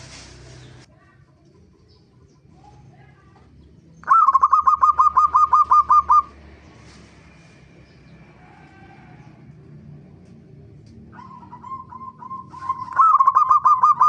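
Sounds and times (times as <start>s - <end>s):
dove cooing: 4.0s - 6.4s, 11.0s - 14.0s.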